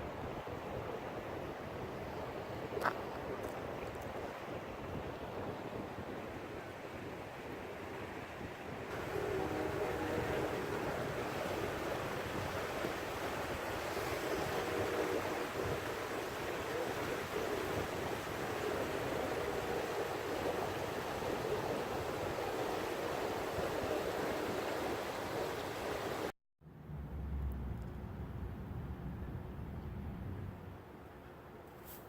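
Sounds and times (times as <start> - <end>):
floodwater rushing: 8.9 - 26.3.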